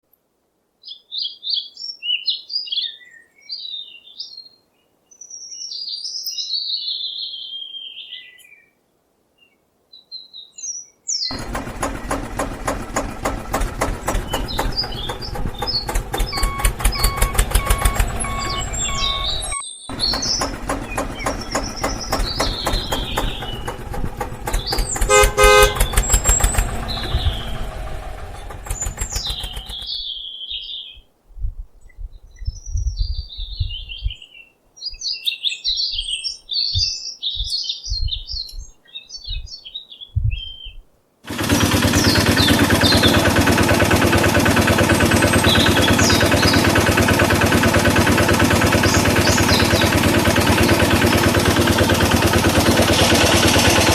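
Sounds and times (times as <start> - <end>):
birds chirping: 10.2 - 31.1, 31.8 - 53.9
engine running: 11.3 - 29.9, 41.3 - 53.9
low thumps: 11.4 - 29.9
horn toot: 24.9 - 26.4.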